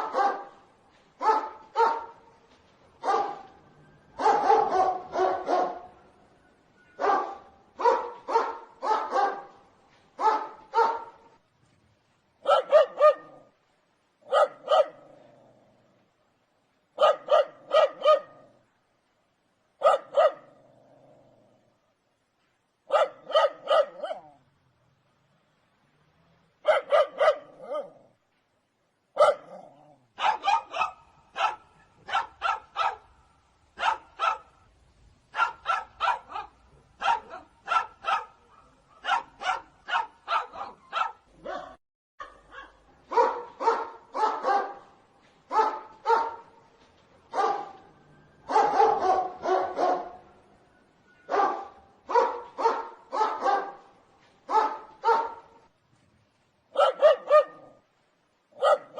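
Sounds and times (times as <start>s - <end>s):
dog barking: 0.0s - 0.6s, 1.2s - 2.3s, 3.0s - 3.6s, 4.2s - 6.0s, 7.0s - 9.6s, 10.2s - 11.3s, 12.4s - 13.5s, 14.2s - 15.1s, 17.0s - 18.5s, 19.8s - 20.5s, 22.9s - 24.4s, 26.6s - 28.0s, 29.2s - 33.1s, 33.8s - 34.6s, 35.3s - 44.9s, 45.5s - 46.6s, 47.3s - 47.8s, 48.5s - 50.2s, 51.3s - 53.9s, 54.5s - 55.6s, 56.7s - 57.8s, 58.6s - 58.9s.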